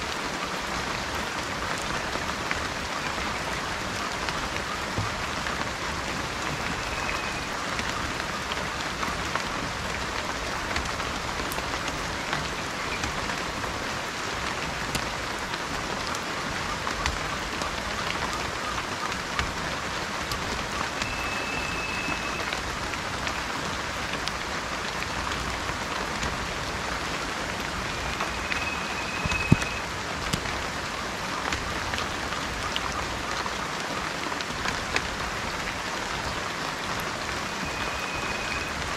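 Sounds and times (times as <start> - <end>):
rain drops pattering: 0.0 - 38.9
whistled bird note: 6.5 - 7.5, 20.8 - 22.6, 27.8 - 29.9, 37.4 - 38.8.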